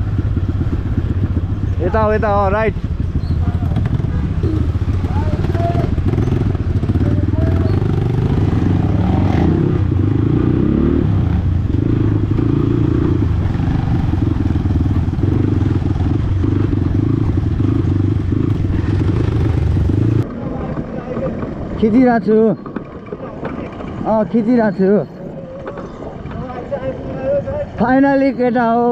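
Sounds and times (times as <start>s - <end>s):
dirt bike engine revving: 0.0s - 20.2s.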